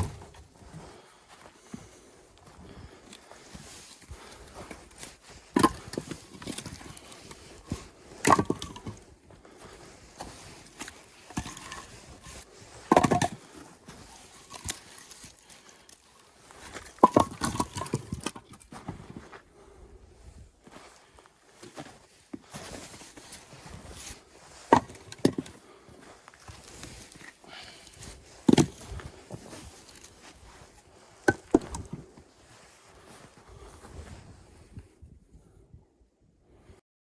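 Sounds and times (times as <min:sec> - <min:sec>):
axe striking firewood: 0:00.0 - 0:00.4, 0:05.5 - 0:07.0, 0:08.2 - 0:09.0, 0:12.9 - 0:13.4, 0:17.0 - 0:18.5, 0:24.6 - 0:25.5, 0:28.4 - 0:29.0, 0:31.2 - 0:32.1
split wood clattering: 0:08.2 - 0:09.0, 0:10.8 - 0:13.5, 0:16.7 - 0:18.6, 0:24.7 - 0:25.5, 0:28.4 - 0:30.1.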